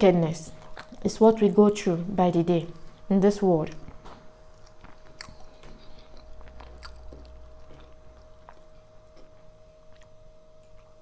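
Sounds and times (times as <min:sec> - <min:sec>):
people chewing: 0:00.6 - 0:01.1, 0:03.7 - 0:11.0.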